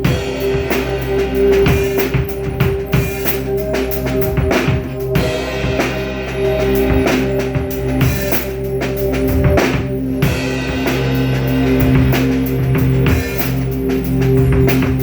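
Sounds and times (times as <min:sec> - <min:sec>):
drum kit groove: 0:00.0 - 0:15.0
held pitched music notes: 0:00.0 - 0:15.0.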